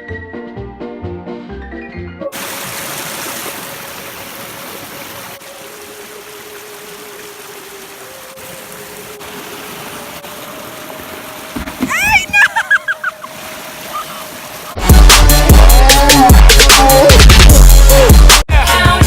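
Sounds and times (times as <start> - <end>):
stream water rushing: 2.3 - 16.3.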